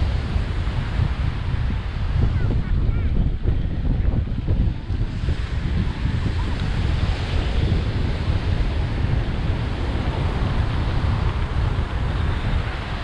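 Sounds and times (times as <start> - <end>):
ocean surf on a beach: 0.0 - 13.0
wind buffeting microphone: 0.0 - 13.0.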